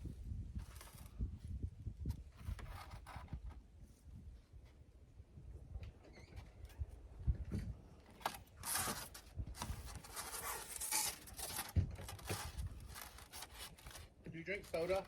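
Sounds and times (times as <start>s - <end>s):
rasping rustling of material: 8.1s - 15.0s.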